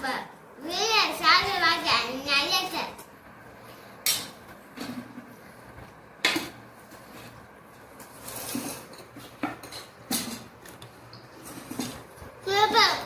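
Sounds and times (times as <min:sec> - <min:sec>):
plates and cutlery clinking: 0:06.2 - 0:12.1.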